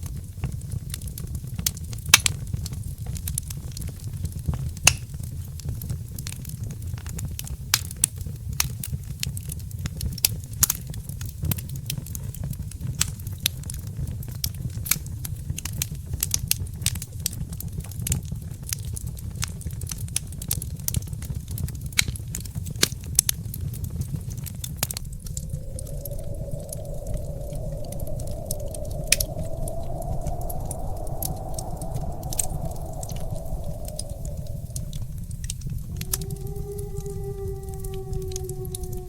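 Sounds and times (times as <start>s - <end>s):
low rumble of flames: 0.0s - 39.0s
wood fire crackling: 22.8s - 39.0s.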